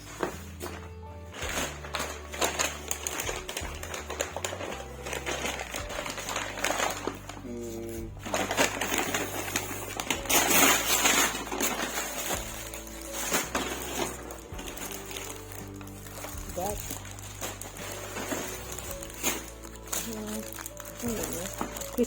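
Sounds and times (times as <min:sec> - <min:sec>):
background music: 0:00.0 - 0:22.0
plastic cases clicking and rustling: 0:08.3 - 0:22.0.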